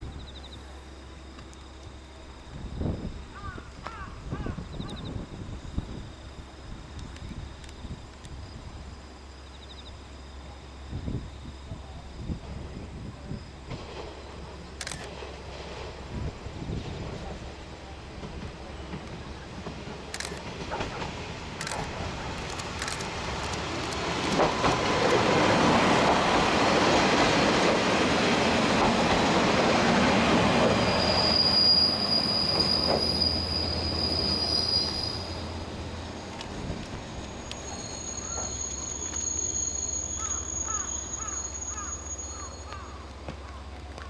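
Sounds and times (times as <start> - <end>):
train engine and wheels rumbling: 0.0 - 44.0
high steady squealing: 21.6 - 36.3, 37.2 - 42.7.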